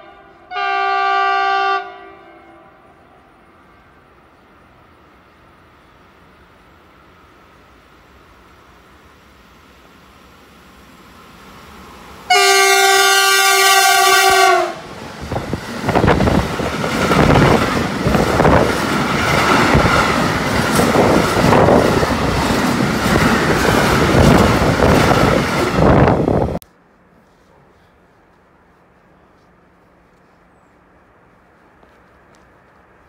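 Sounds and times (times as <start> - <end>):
train horn blast: 0.0 - 3.4, 12.3 - 14.8
train wheels clattering on rails: 15.2 - 26.3.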